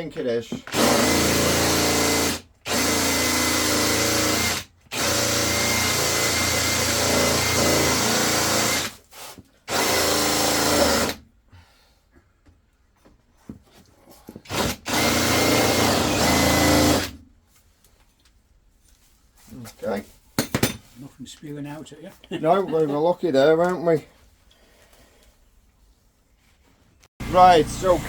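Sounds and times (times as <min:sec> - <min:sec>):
power drill cutting: 0:00.7 - 0:09.0, 0:09.7 - 0:11.2, 0:14.5 - 0:17.2, 0:27.2 - 0:28.0.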